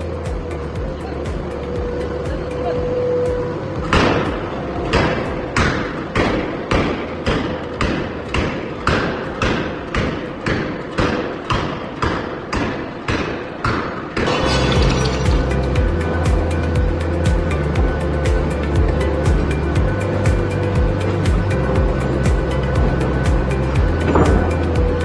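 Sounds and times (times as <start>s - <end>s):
forging hammer striking metal: 14.2s - 16.1s.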